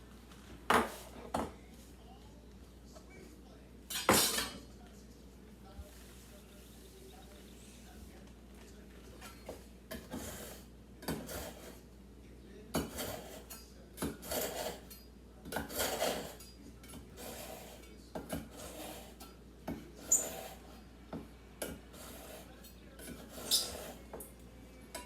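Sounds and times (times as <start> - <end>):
knife rasping on sharpener: 10.1 - 11.8, 14.2 - 14.9, 15.6 - 16.4, 17.2 - 19.2, 20.0 - 20.7, 22.0 - 24.0.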